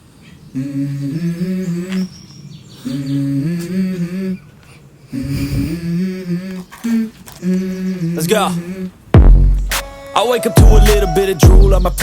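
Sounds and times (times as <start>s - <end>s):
person humming a tune: 9.7s - 12.0s.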